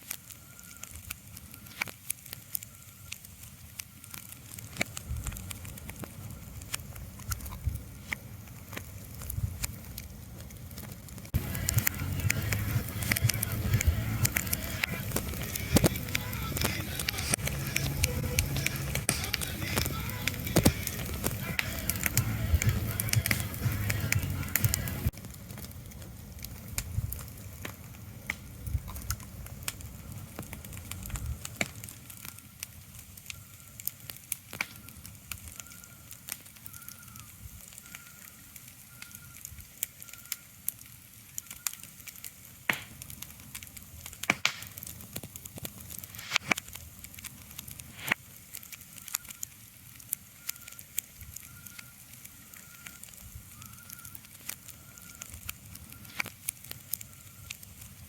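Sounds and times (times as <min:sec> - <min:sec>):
irregular crackles and pops: 0:00.0 - 0:58.0
low rumble: 0:11.4 - 0:31.4.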